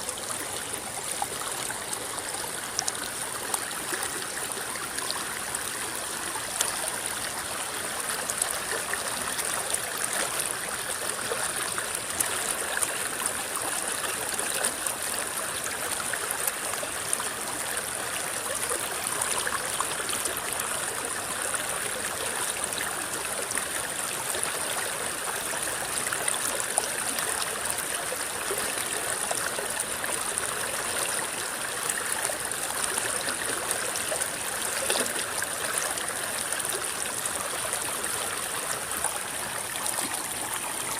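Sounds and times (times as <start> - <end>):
river gurgling over stones: 0.0 - 40.9
small water splashes: 32.3 - 37.4.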